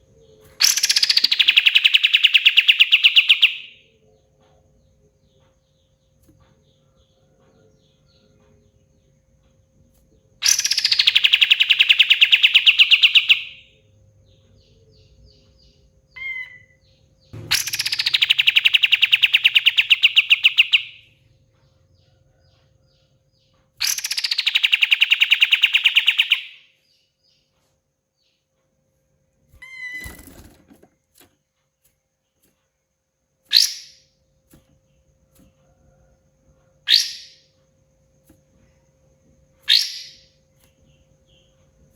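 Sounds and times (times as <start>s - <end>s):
short bird chirps: 16.1s - 21.0s, 29.5s - 30.5s, 33.5s - 34.6s
songbird rapid trills: 17.4s - 21.1s.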